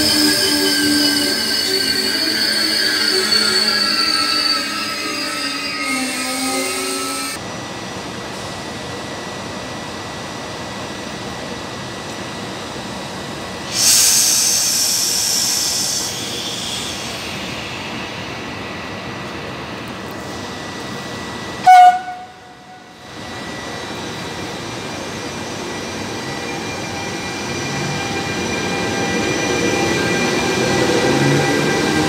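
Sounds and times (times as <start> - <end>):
train wheels squealing on rails: 0.0 - 7.4, 13.6 - 32.0
electric locomotive rumble: 0.0 - 32.0
compressed air hiss: 13.6 - 18.1
faint high whine: 13.7 - 31.5.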